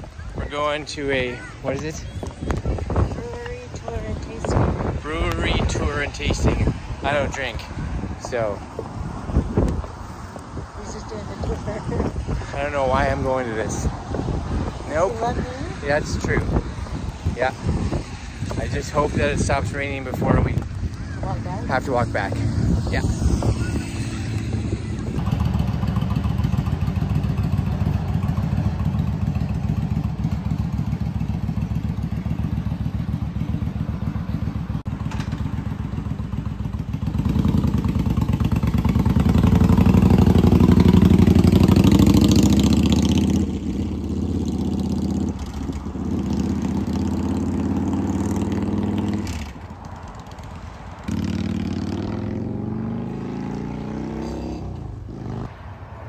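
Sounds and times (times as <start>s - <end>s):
motorcycle engine running: 18.4s - 49.6s.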